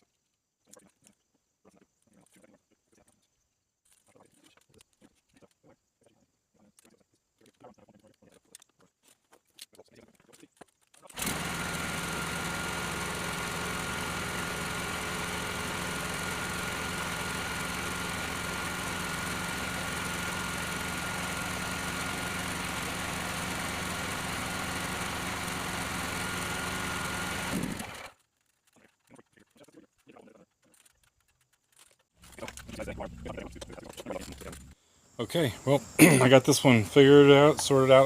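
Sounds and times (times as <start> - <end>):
generator engine running: 11.2 - 28.2
thin steady whine: 32.2 - 38.0.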